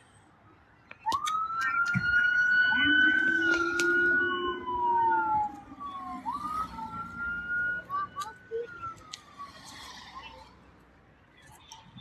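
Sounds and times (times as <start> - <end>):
emergency vehicle siren wailing: 0.9 - 10.6
lower siren tone: 1.1 - 10.3.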